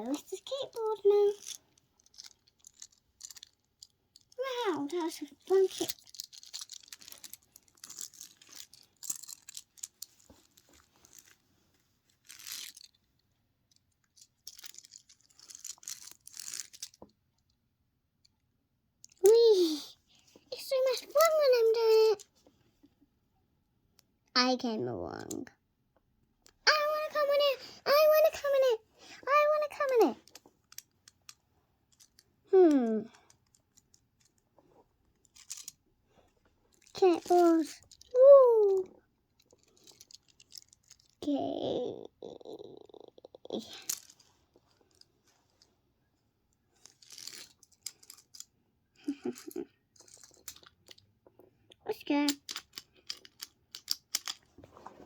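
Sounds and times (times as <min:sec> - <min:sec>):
small clicks of toys: 0:00.0 - 0:11.4, 0:12.1 - 0:17.6, 0:19.0 - 0:22.4, 0:26.4 - 0:34.5, 0:35.1 - 0:45.7, 0:46.7 - 0:54.7
scraping rustle of toys: 0:00.0 - 0:13.2, 0:14.0 - 0:17.1, 0:26.7 - 0:45.9, 0:46.6 - 0:48.5, 0:49.1 - 0:51.0, 0:52.1 - 0:55.0.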